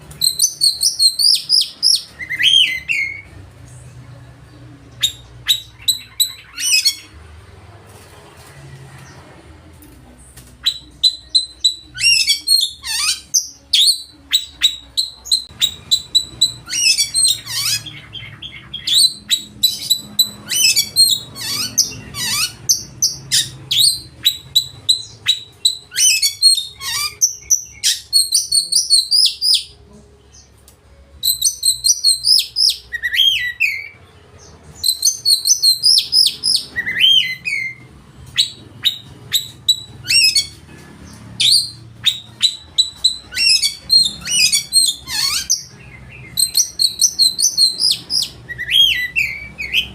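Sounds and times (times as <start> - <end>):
songbird singing loudly: 0.1 - 3.4, 10.6 - 29.7, 31.2 - 37.8, 38.4 - 40.6, 41.4 - 49.9.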